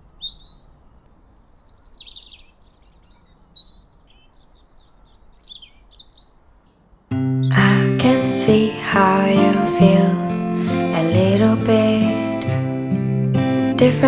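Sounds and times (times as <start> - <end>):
songbirds chirping and trilling: 0.0 - 8.2.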